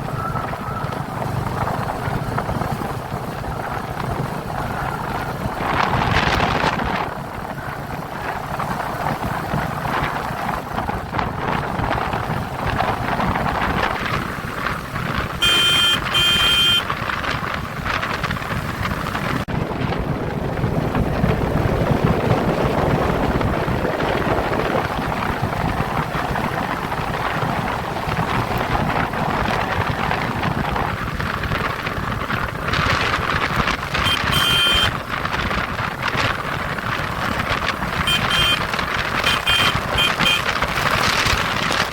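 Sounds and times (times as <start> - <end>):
motorcycle engine: 0.0 - 41.9
wind and road noise: 0.0 - 41.9
horn beeps: 15.4 - 16.9, 34.0 - 35.0, 38.0 - 40.6.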